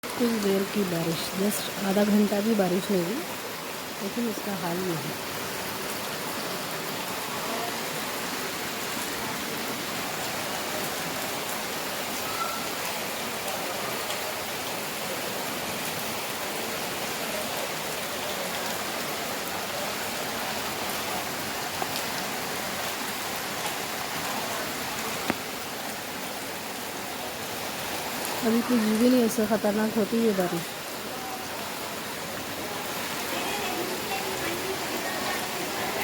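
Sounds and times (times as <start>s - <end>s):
heavy rain hissing: 0.0s - 36.0s.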